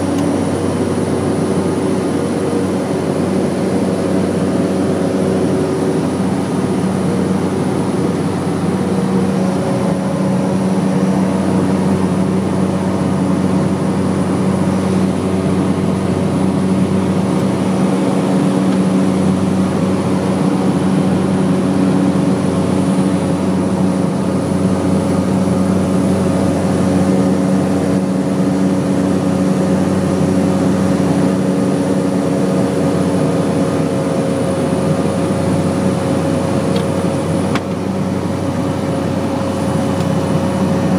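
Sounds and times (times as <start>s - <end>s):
propeller airplane engine droning: 0.0s - 40.9s.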